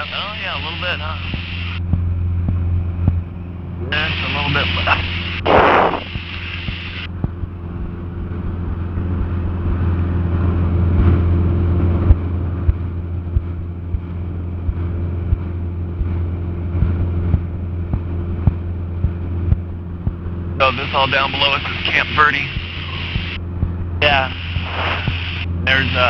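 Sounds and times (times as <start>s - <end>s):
propeller plane engine droning: 0.0s - 26.0s
sharp clicks: 4.9s - 7.1s.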